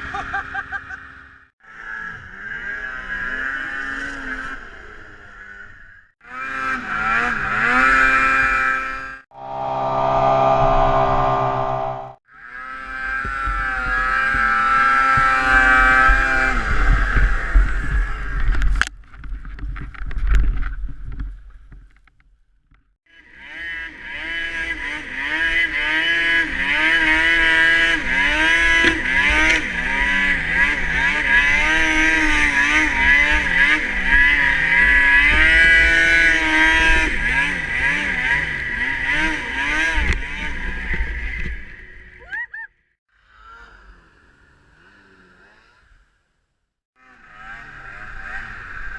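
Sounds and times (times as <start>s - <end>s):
snowmobile engine revving: 1.7s - 5.6s, 6.3s - 18.4s, 23.2s - 41.4s, 47.0s - 48.9s.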